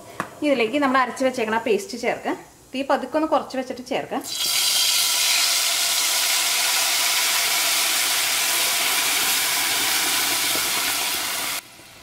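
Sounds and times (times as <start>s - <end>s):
paste sizzling in hot oil: 4.2s - 12.0s.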